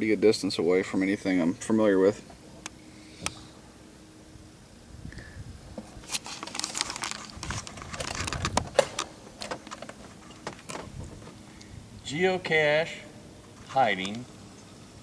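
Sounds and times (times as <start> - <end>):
crinkling rustles: 5.8 - 11.4.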